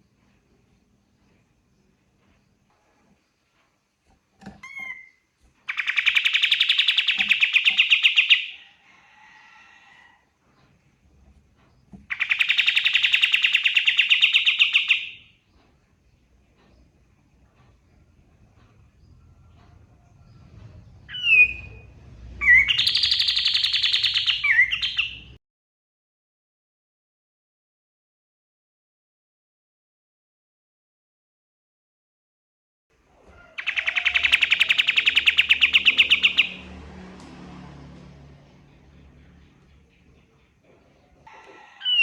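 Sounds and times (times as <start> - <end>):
songbird singing: 4.6 - 8.7, 11.5 - 25.4, 33.3 - 36.8, 38.5 - 42.0.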